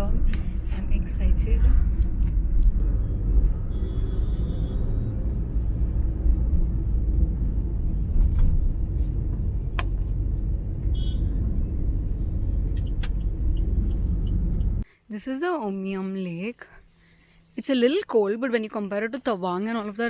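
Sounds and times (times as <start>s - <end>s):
car driving rumble: 0.0s - 14.8s.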